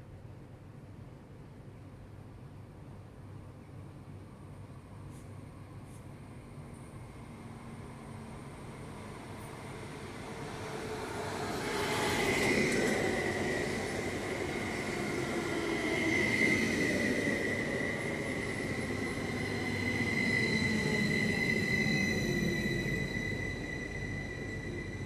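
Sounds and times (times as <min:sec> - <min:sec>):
electric train rumble: 0:00.0 - 0:25.0
high-pitched whine: 0:07.4 - 0:25.0.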